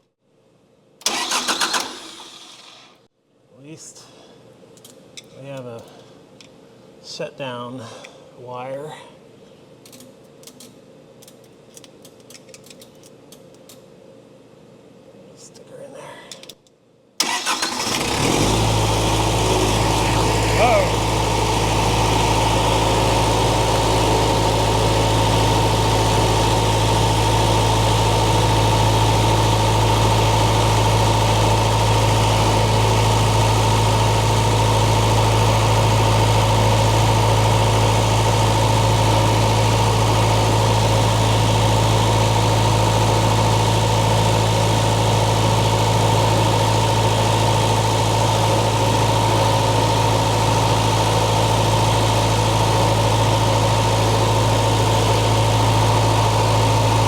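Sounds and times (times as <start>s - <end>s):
diesel engine idling: 17.2s - 57.0s
high whine: 18.7s - 25.8s.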